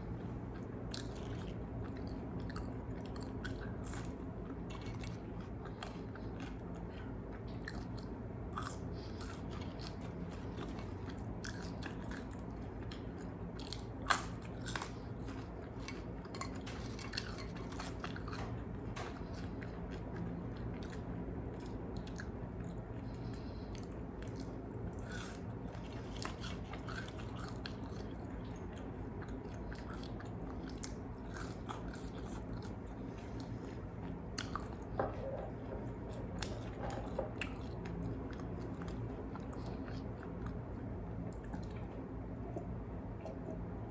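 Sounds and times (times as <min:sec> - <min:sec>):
person chewing crispy chicken: 0:00.2 - 0:35.0.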